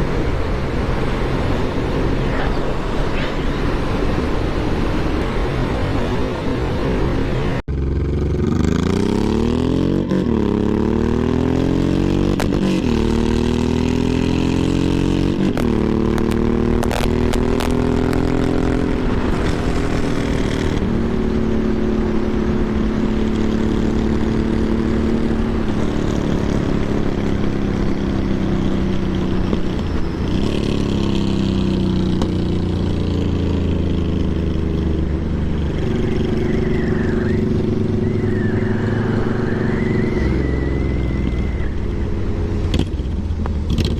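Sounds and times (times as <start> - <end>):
motorcycle engine shifting gears: 0.0 - 43.9.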